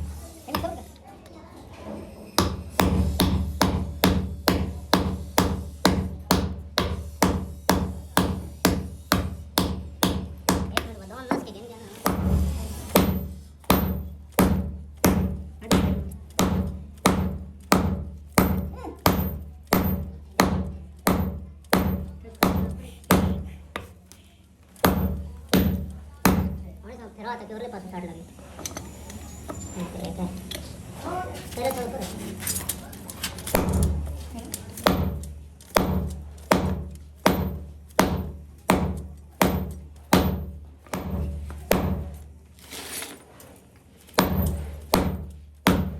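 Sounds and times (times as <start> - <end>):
hammer on metal: 2.4 - 24.0, 24.8 - 26.7, 34.8 - 42.2, 44.2 - 45.9.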